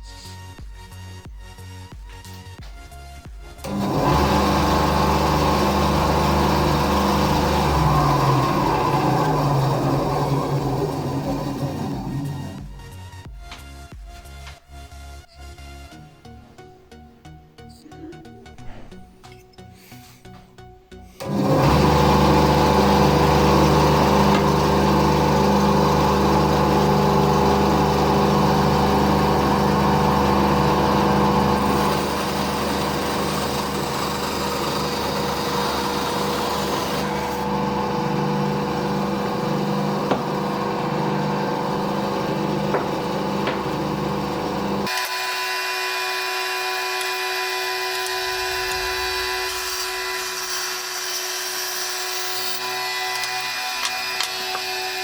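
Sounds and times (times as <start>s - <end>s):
bandsaw cutting wood: 3.6s - 12.9s, 21.2s - 55.0s.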